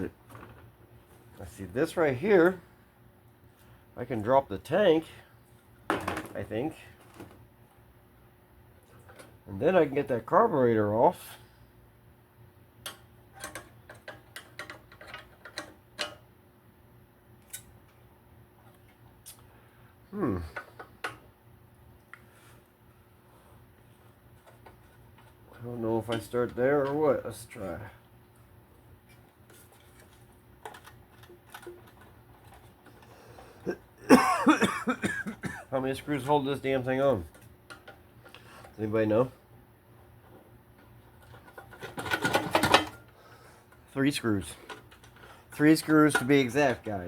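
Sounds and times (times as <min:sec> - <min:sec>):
faint low hum: 0:00.0 - 0:47.0
man talking: 0:01.4 - 0:02.6, 0:04.0 - 0:05.3, 0:06.2 - 0:07.0, 0:09.5 - 0:11.4, 0:20.1 - 0:20.6, 0:25.5 - 0:28.0, 0:35.6 - 0:37.3, 0:38.8 - 0:39.4, 0:43.9 - 0:44.7, 0:45.5 - 0:47.0.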